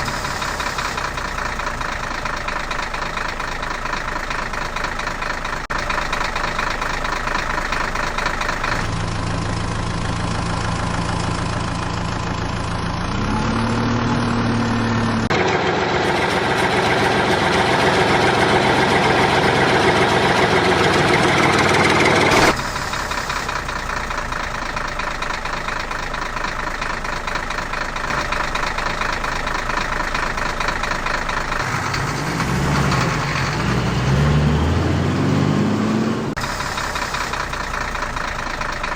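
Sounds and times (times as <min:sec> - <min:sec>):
heavy vehicle engines idling: 0:00.0 - 0:38.9.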